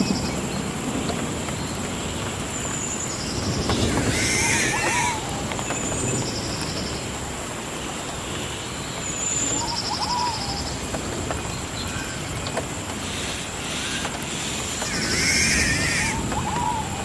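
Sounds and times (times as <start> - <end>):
birds trilling and chirping: 0.0 - 17.0
constant high-pitched whine: 0.0 - 17.0
steady hiss: 0.0 - 17.0.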